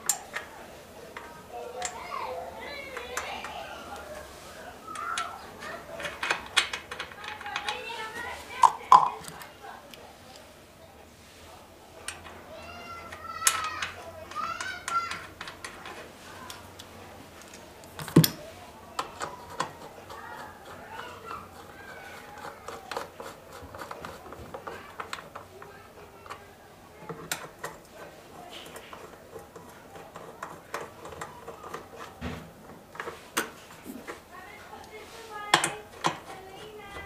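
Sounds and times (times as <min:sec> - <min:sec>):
tools and metal parts clicking: 0:00.0 - 0:00.5, 0:06.0 - 0:07.9, 0:13.1 - 0:18.4, 0:19.0 - 0:33.6.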